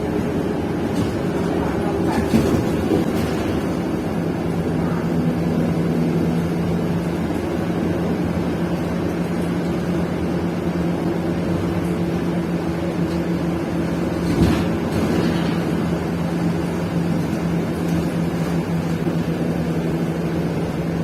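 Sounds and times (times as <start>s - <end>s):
bus engine droning: 0.0s - 21.0s.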